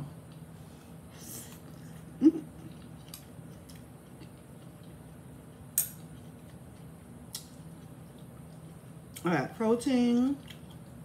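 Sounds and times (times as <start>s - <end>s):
person chewing noodles: 2.6s - 9.2s.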